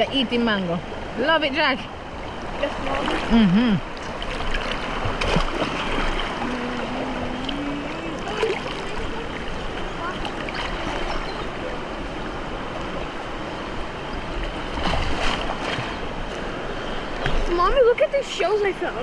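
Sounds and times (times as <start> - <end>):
flowing river water: 0.0 - 19.0
faint voices: 6.2 - 12.3.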